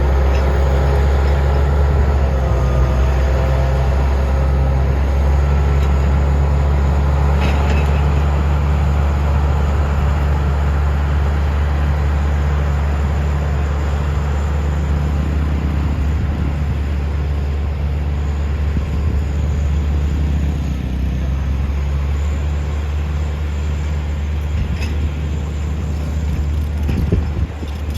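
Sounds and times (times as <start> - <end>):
diesel engine droning: 0.0 - 27.9
rough mechanical rattle: 14.4 - 27.9.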